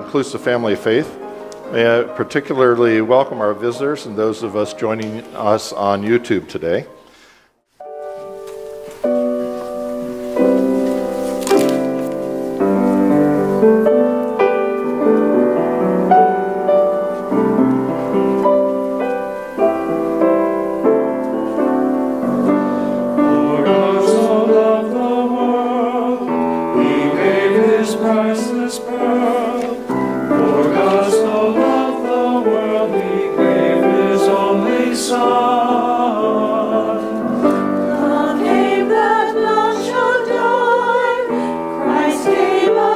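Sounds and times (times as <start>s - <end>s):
keyboard chords: 7.8s - 42.9s
choir singing: 9.7s - 42.9s.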